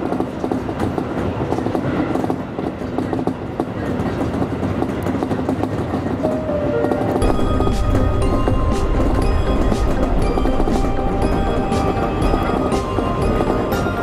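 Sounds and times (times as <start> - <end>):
scattered clicks of rail: 0.0 - 7.2
train wheels rumbling on rail: 0.0 - 14.0.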